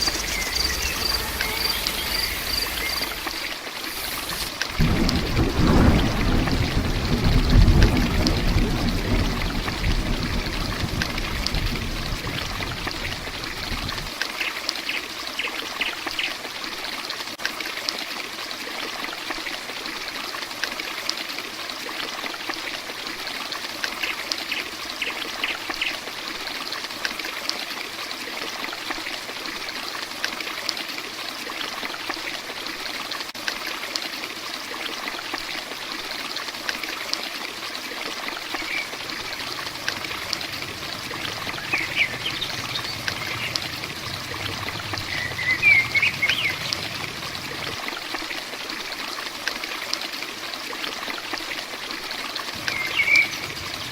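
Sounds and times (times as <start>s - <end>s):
low rumble: 0.0s - 3.4s, 38.8s - 47.9s
heavy rain: 0.0s - 14.2s, 38.2s - 49.0s, 51.1s - 53.9s.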